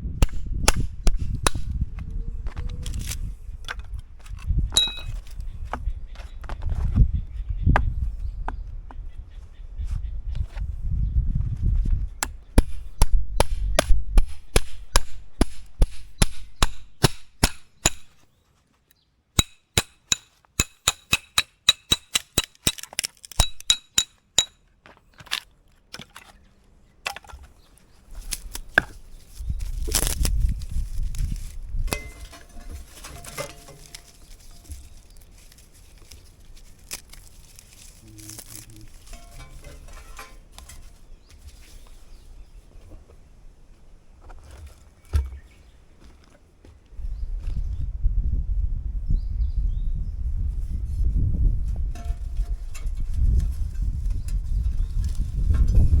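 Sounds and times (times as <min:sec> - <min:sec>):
rustling: 0:27.4 - 0:43.1.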